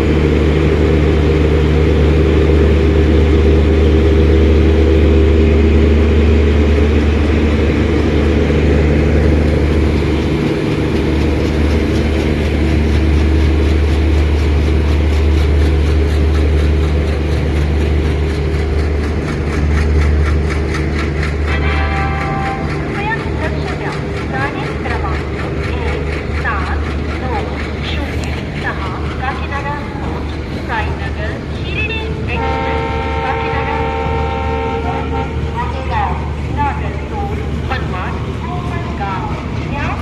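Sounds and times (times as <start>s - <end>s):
diesel locomotive engine drone: 0.0s - 40.0s.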